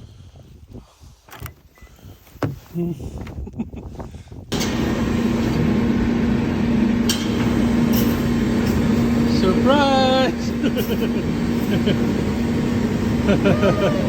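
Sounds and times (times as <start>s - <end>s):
car running with low hum: 4.5s - 14.0s.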